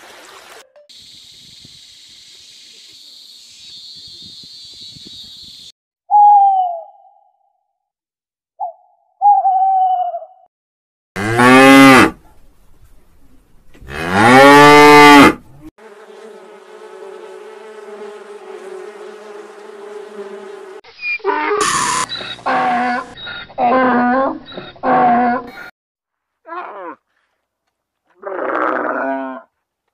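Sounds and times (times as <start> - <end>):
owl hooting: 6.1 - 7.3, 8.6 - 10.4
cow mooing: 11.2 - 12.2, 13.9 - 15.4, 28.2 - 29.5
honeybee buzzing: 15.8 - 20.8
loud animal sound: 21.1 - 25.7.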